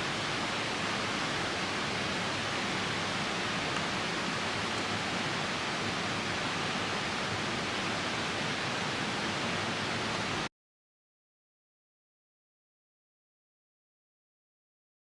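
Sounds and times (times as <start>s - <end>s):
rain falling: 0.0s - 10.5s
river rushing: 0.0s - 10.5s.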